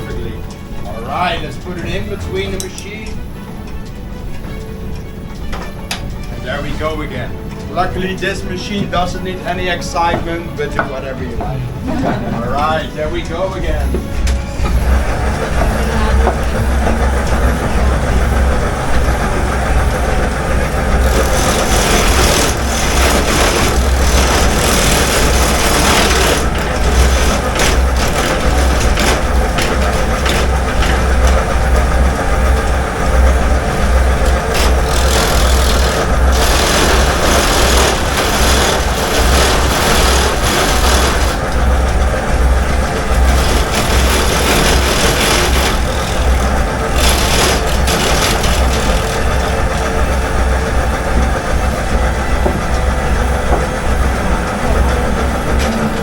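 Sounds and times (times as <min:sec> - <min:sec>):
low motor hum: 0:00.0 - 0:56.0
knives cutting wood: 0:21.1 - 0:30.5, 0:43.3 - 0:49.5.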